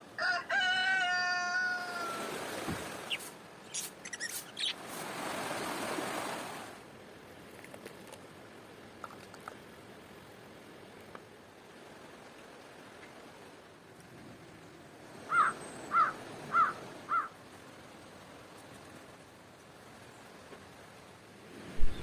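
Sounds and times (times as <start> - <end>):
rooster crowing: 0.0 - 2.4.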